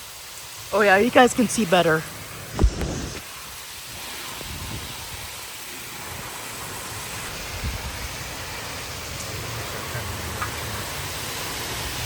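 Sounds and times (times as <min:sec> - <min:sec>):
heavy rain hissing: 0:00.0 - 0:12.0
wind buffeting microphone: 0:02.4 - 0:03.2.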